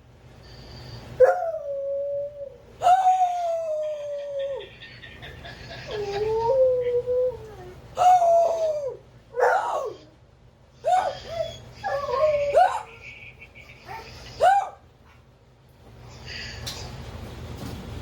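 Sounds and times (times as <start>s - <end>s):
dog howling: 1.2s - 4.7s, 5.9s - 10.1s.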